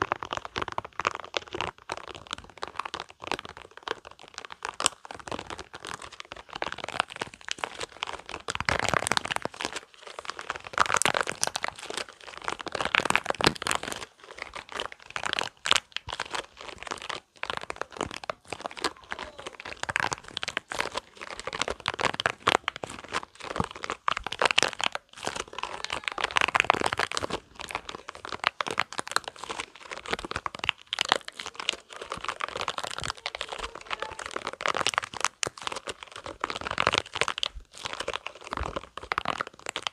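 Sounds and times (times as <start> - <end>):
rubber balls crackling and clicking: 0.0 - 39.9.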